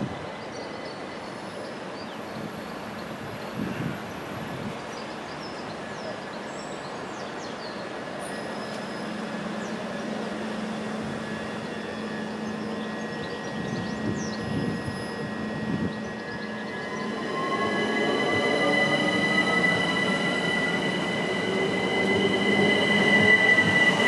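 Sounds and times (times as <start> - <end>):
electric train running: 8.2 - 24.0.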